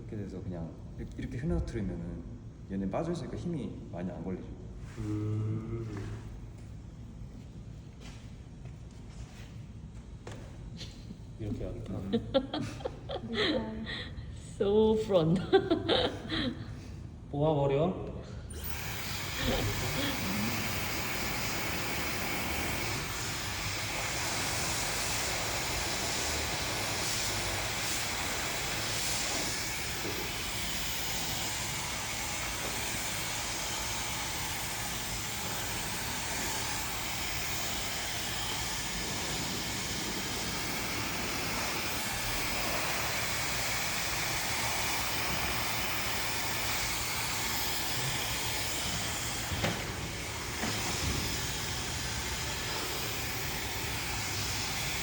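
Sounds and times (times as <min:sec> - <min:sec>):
hair dryer blowing air: 0:11.5 - 0:14.0, 0:15.2 - 0:16.7, 0:18.5 - 0:55.0.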